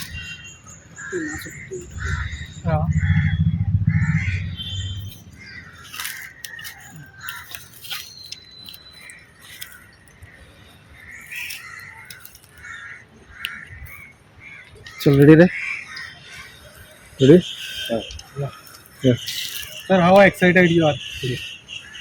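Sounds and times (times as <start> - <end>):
birds calling: 0.0 - 22.0
low rumble: 1.8 - 5.8.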